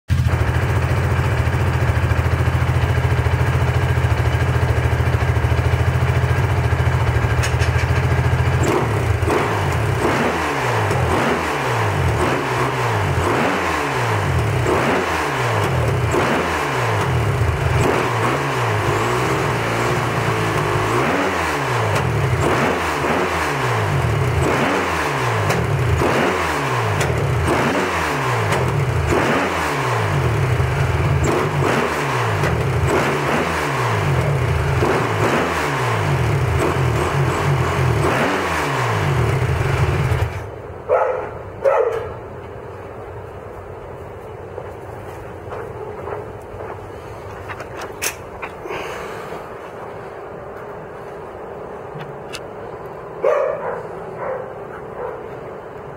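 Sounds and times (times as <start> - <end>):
dirt bike engine revving: 0.1 - 40.5.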